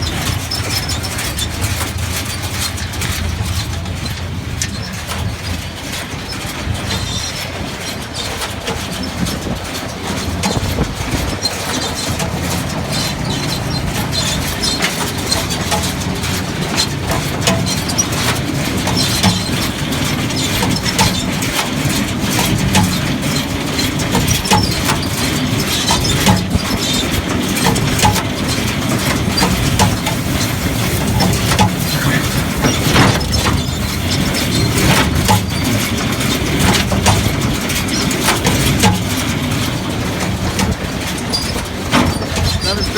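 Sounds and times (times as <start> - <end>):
hay baler machinery clattering: 0.0 - 42.9
low engine drone: 27.3 - 37.5.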